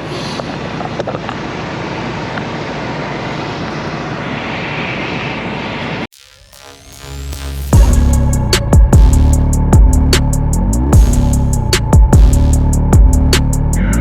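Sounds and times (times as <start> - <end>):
truck engine and road noise: 0.0 - 6.1.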